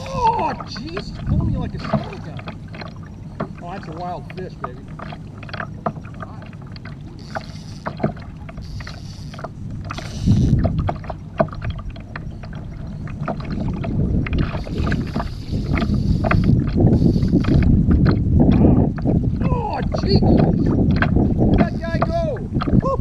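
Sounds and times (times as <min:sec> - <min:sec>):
water splashing against kayak hull: 0:00.0 - 0:23.0
sharp clicks and knocks: 0:04.3 - 0:12.3.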